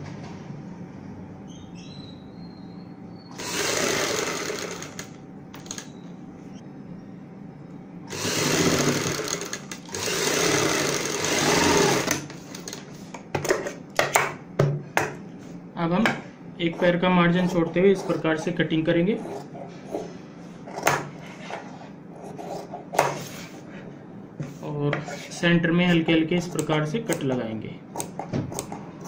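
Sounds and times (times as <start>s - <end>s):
sewing machine stitching: 3.3s - 5.8s, 8.1s - 12.3s.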